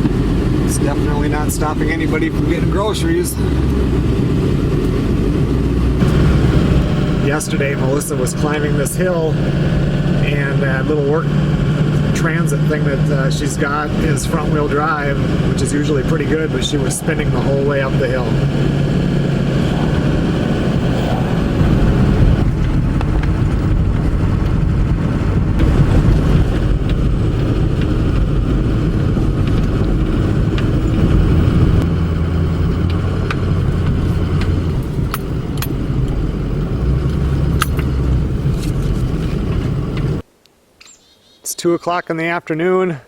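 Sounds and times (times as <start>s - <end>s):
car engine hum and road noise: 0.0s - 40.3s.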